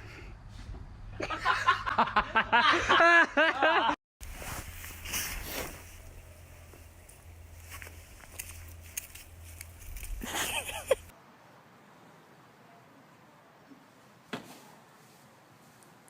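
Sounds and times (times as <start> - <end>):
person laughing hard: 1.2 - 4.0, 10.2 - 11.1.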